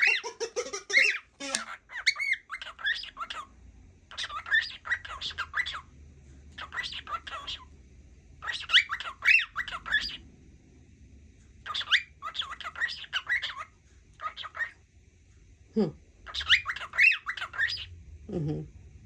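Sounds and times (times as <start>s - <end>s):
cockatiel chattering and whistling: 0.0s - 5.9s, 6.6s - 7.7s, 8.4s - 10.2s, 11.6s - 14.8s, 16.2s - 17.9s.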